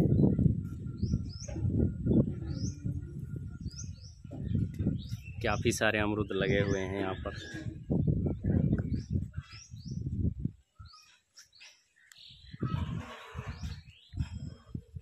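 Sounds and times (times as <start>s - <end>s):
bird chirping: 0.0s - 8.1s
low rumbling on microphone: 0.0s - 10.8s, 12.3s - 15.0s.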